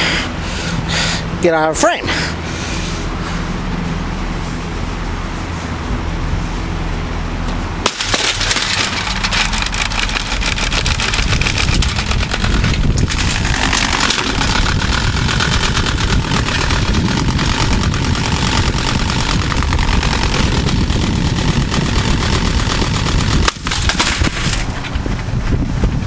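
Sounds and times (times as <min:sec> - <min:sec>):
fan motor hum: 0:00.0 - 0:26.0
fan blades clattering on obstruction: 0:00.5 - 0:26.0.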